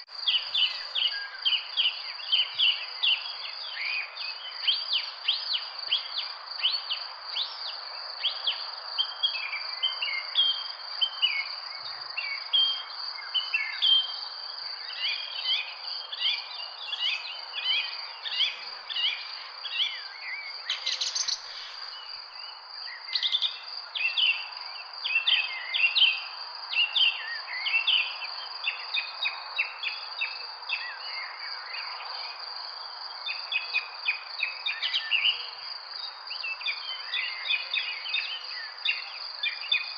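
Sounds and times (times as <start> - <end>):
birds chirping and singing: 0.1 - 4.1, 14.8 - 24.4
steady background hiss: 0.1 - 30.0.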